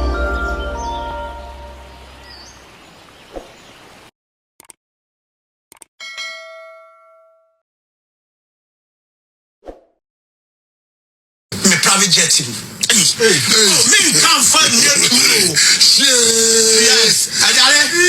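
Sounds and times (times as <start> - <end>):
music: 0.0 - 2.1
short clicks: 4.6 - 4.8, 5.7 - 5.9
bell-like ding: 6.0 - 7.6.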